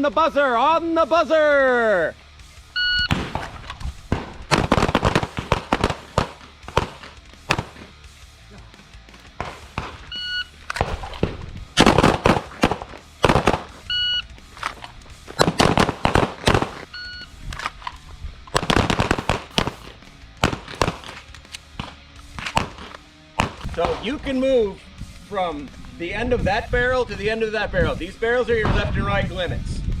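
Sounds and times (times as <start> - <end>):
shot timer beeps: 2.8 - 3.1, 10.1 - 10.5, 13.9 - 14.2, 16.9 - 17.3
pistol shots: 3.0 - 8.0, 9.3 - 14.0, 14.6 - 16.9, 18.5 - 24.4.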